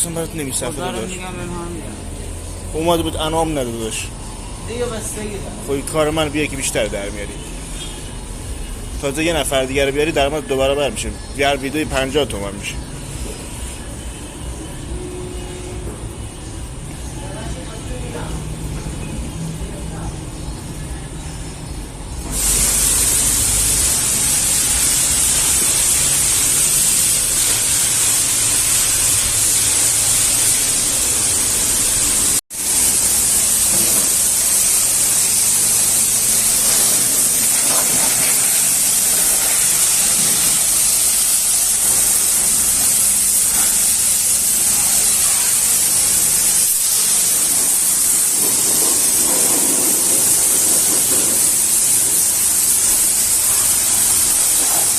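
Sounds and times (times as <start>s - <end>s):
pressure washer spraying water: 22.2s - 54.9s.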